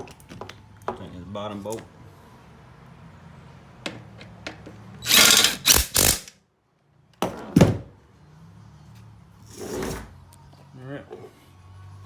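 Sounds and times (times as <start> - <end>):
power tool loud bursts: 5.0 - 6.3.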